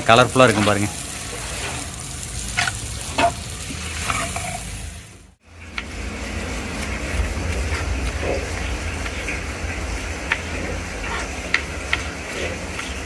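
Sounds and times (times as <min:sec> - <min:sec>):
food sizzling in hot oil: 0:00.0 - 0:13.0
stirring scrapes: 0:02.6 - 0:04.8
low rumble: 0:04.9 - 0:11.9.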